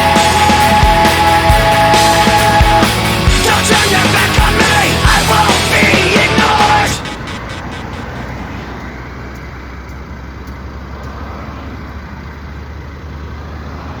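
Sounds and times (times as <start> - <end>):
heavy vehicle engine humming: 0.0 - 14.0
road and rain hiss: 6.7 - 14.0
faint clicks: 7.6 - 11.4.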